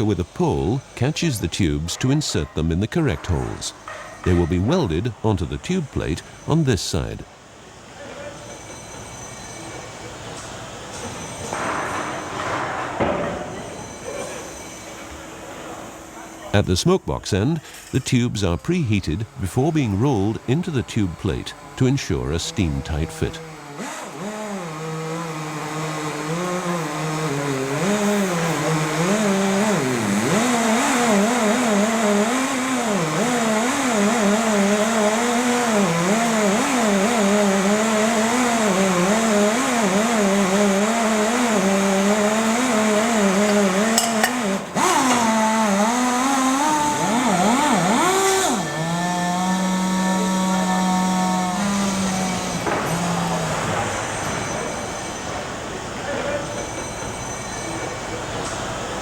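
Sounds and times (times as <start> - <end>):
power tool motor whirring: 22.7 - 58.6.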